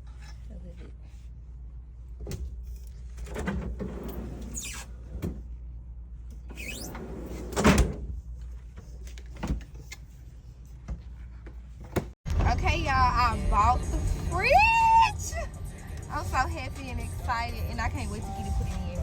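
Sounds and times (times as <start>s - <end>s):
squeaky drawer sliding: 3.2s - 5.4s, 6.5s - 8.0s.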